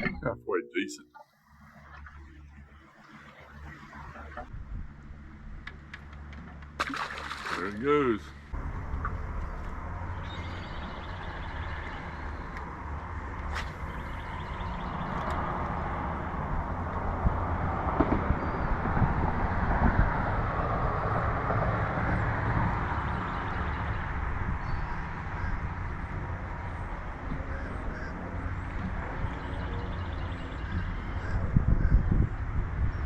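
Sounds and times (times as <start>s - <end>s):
wind buffeting microphone: 8.5s - 33.0s.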